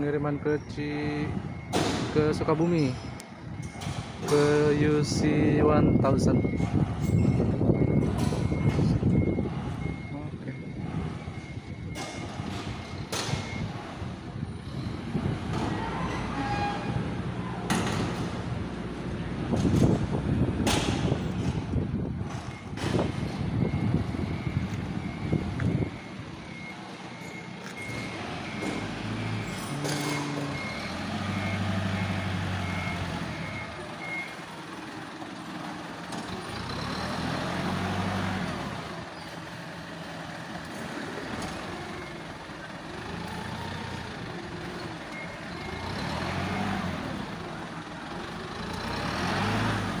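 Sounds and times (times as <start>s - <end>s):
reversing beeper: 0.0s - 13.8s
diesel truck engine revving: 3.4s - 50.0s.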